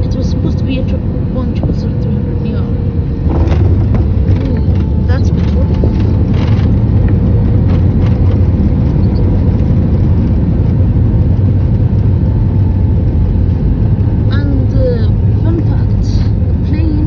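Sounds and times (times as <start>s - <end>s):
jet engine noise in cabin: 0.0s - 17.0s
wheels rolling on runway: 3.2s - 14.6s.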